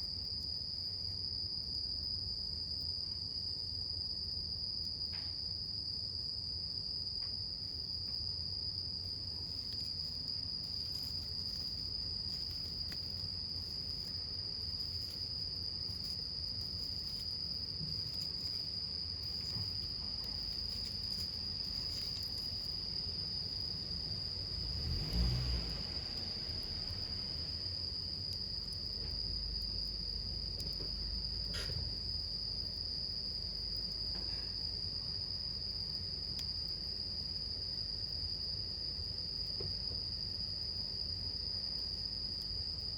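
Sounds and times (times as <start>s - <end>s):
crickets trilling: 0.0s - 42.9s
campfire crackling: 9.1s - 24.5s.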